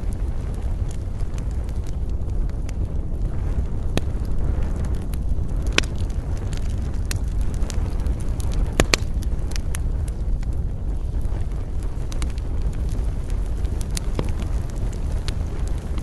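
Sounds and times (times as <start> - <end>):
campfire crackling: 0.0 - 16.0
low rumble: 0.0 - 16.0
wood pops: 5.7 - 6.1, 8.7 - 9.1.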